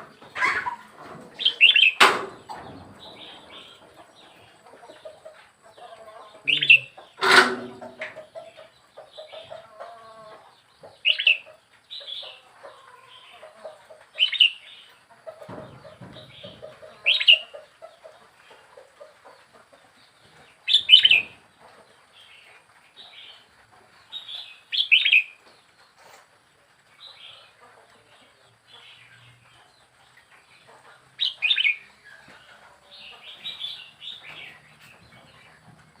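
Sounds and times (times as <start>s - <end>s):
soft low bird chatter: 0.0s - 36.0s
bird calling: 6.4s - 8.2s, 20.7s - 21.3s.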